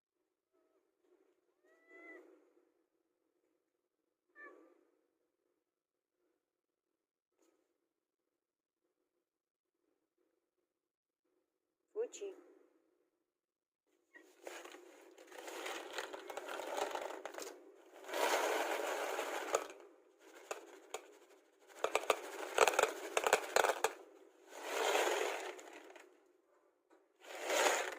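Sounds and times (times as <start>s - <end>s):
rustling and scraping: 14.2s - 26.1s, 27.2s - 27.9s
sharp clicks and knocks: 19.2s - 24.0s.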